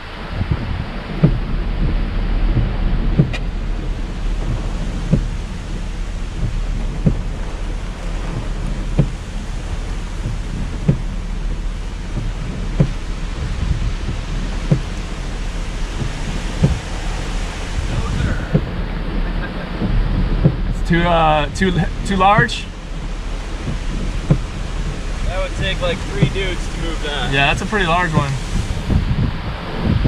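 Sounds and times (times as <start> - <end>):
constant low rumble: 0.0 - 30.0
rain and wind on a truck: 0.0 - 30.0
windshield wiper thumps: 0.1 - 30.0.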